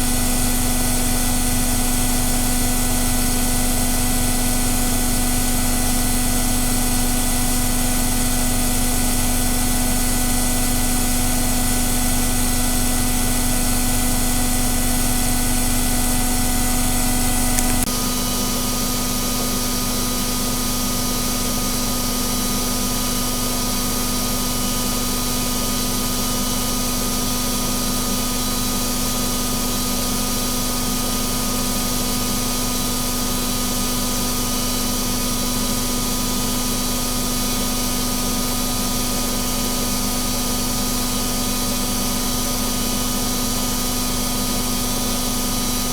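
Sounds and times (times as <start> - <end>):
washing machine spinning: 0.0 - 17.9.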